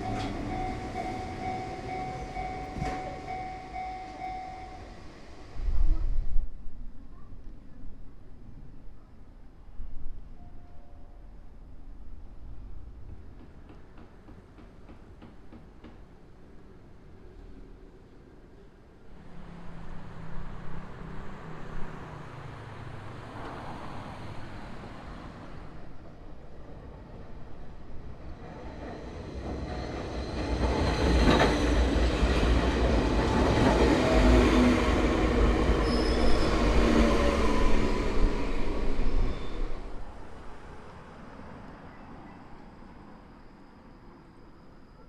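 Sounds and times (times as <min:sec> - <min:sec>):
train motor tones: 0:00.0 - 0:04.9
train wheels rumbling on rail: 0:00.0 - 0:06.6, 0:12.2 - 0:16.8, 0:23.2 - 0:41.1
high wheel squeal: 0:35.6 - 0:40.0.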